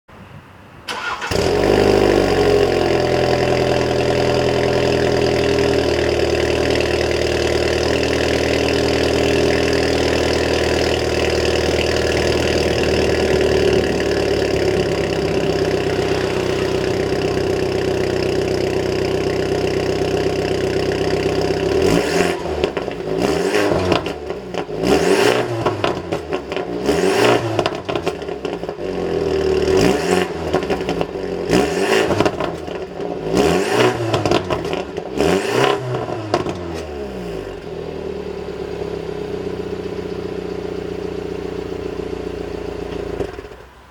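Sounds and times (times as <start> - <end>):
car engine starting and idling: 0.8 - 43.9
quick engine revs: 12.8 - 19.0.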